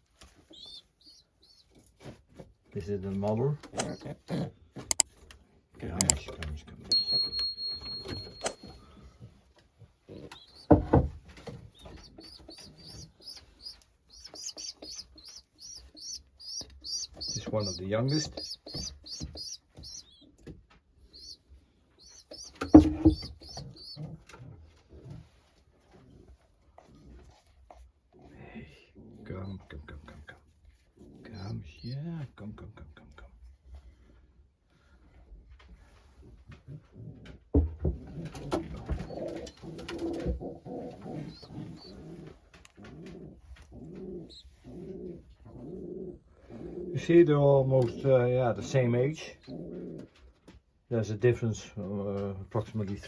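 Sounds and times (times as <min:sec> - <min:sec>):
pigeons chirping: 0:00.3 - 0:01.8, 0:03.6 - 0:04.5, 0:06.9 - 0:08.9, 0:10.1 - 0:24.2, 0:31.0 - 0:32.2, 0:38.1 - 0:50.2
louder lower bird sound: 0:11.8 - 0:20.3
sharp knocks: 0:22.6 - 0:23.7.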